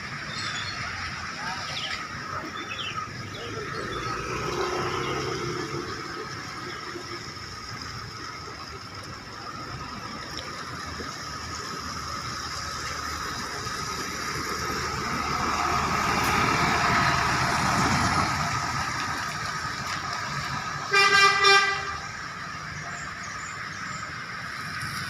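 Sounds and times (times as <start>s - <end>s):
traffic on wet road: 0.0s - 25.0s
vehicle passing: 3.2s - 8.8s, 13.2s - 20.9s
rain: 4.2s - 25.0s.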